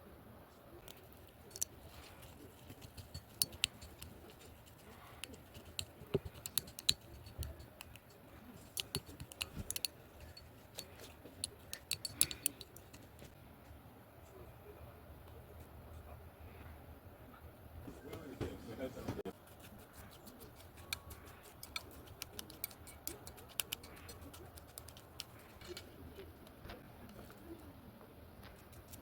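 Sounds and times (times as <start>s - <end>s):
small hard objects clicking: 0.8s - 13.1s, 20.1s - 26.0s.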